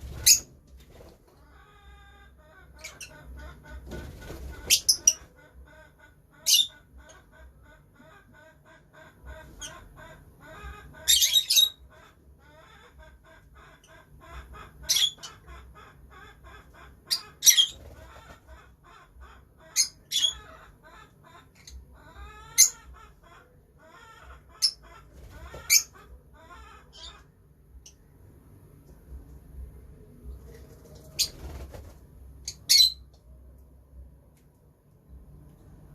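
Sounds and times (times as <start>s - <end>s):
shrill bird calls: 10.6s - 12.9s.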